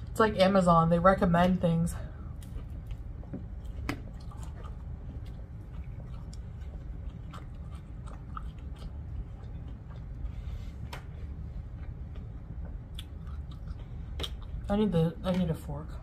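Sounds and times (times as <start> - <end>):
steady low hum: 0.0 - 16.0
chewing food: 2.3 - 14.7.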